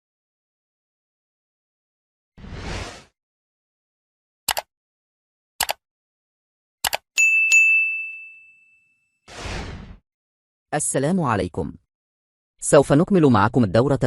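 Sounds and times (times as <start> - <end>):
quick double clicks: 4.5 - 4.7, 5.6 - 5.8
bright bell-like ding: 7.2 - 9.0.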